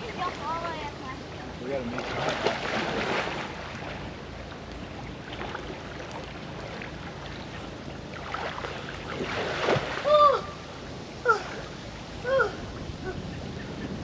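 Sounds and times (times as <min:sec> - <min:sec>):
water splashing and sloshing: 0:00.0 - 0:14.0
wind on microphone: 0:12.2 - 0:14.0.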